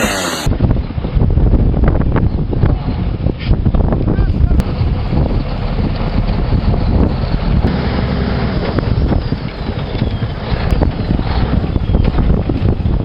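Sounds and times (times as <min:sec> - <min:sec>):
wind buffeting microphone: 0:00.4 - 0:13.0
heavy engine rumble: 0:04.3 - 0:13.0.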